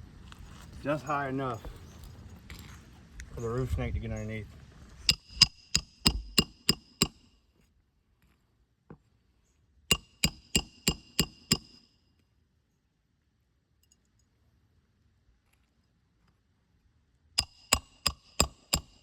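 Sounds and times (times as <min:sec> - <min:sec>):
hammer striking metal: 0:05.1 - 0:07.2, 0:09.9 - 0:11.8, 0:17.4 - 0:19.0.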